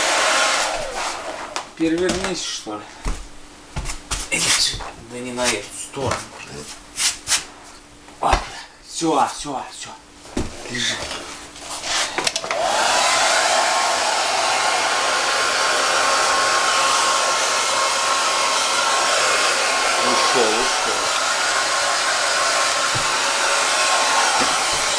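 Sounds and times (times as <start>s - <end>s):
hair dryer blowing air: 0.0s - 2.4s, 11.7s - 24.9s.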